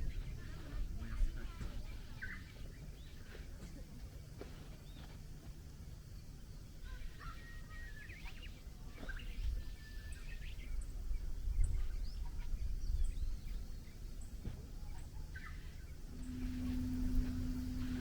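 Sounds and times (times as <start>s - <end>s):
small birds chirping: 0.0s - 18.0s
steady low rumble: 15.8s - 18.0s.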